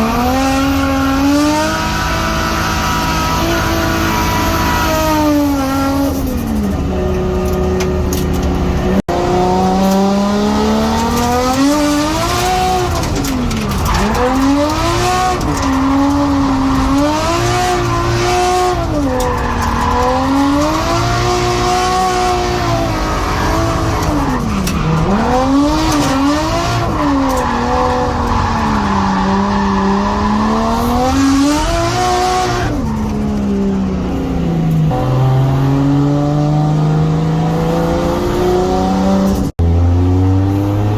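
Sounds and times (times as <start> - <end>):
car engine revving: 0.0 - 40.9
tyre squeal: 12.0 - 21.1.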